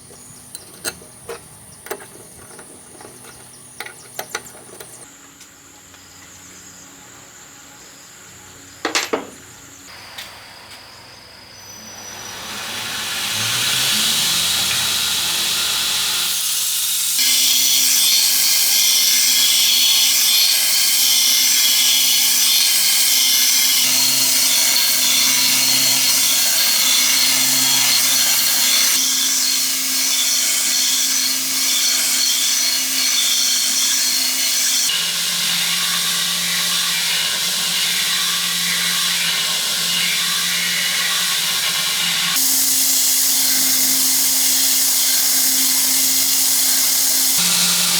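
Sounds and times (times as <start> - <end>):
motor hum: 0.0 - 5.1
power tool grinding steel: 0.0 - 5.1, 11.7 - 47.9.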